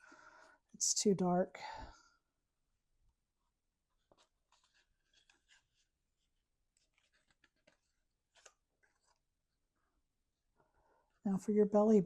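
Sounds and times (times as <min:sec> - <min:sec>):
paper rustling and tapping: 0:04.0 - 0:05.9, 0:06.7 - 0:09.2.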